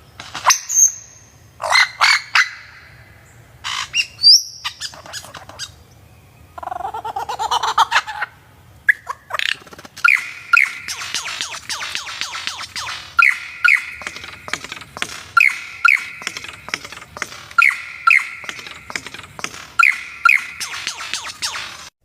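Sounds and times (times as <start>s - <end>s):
bird chattering song: 0.0s - 21.9s
bird whistled notes: 10.0s - 21.9s.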